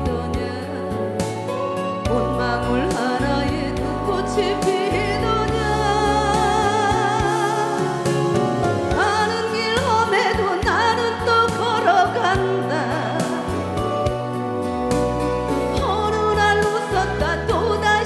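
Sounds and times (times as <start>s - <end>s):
person singing with vibrato: 0.0s - 14.3s, 15.7s - 18.0s
instrumental accompaniment: 0.0s - 18.0s.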